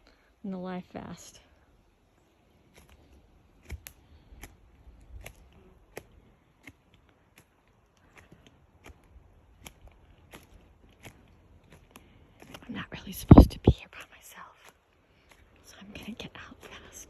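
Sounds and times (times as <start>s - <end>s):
footsteps clicking: 2.7s - 13.6s.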